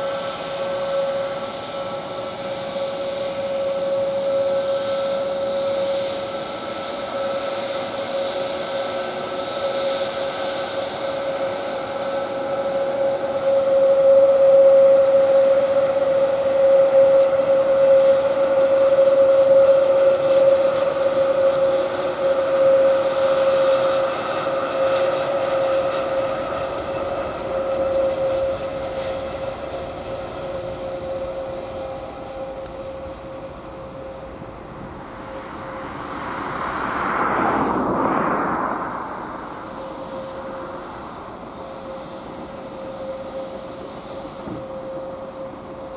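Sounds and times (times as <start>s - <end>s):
jet engines whining: 0.0s - 45.9s
rushing noise: 32.5s - 41.9s.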